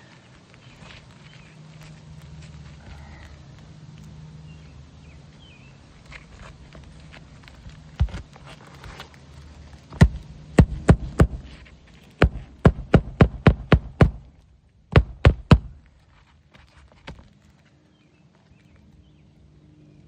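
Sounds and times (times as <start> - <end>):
hammer driving nails into shingles: 9.9 - 11.6, 12.2 - 15.8.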